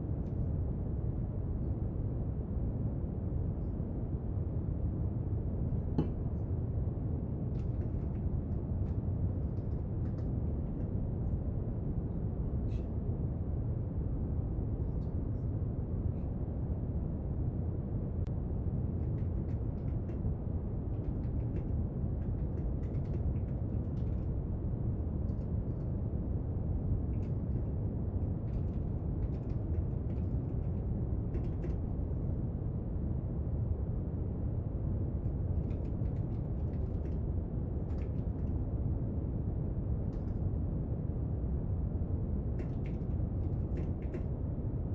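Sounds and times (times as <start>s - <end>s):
faint clicks and taps: 5.7s - 6.4s, 42.6s - 44.3s.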